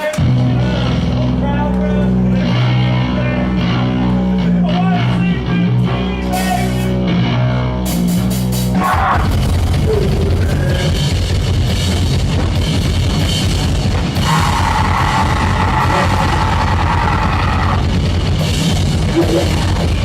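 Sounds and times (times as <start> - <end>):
distorted guitar: 0.0 - 20.0
rapid drumming: 7.9 - 20.0.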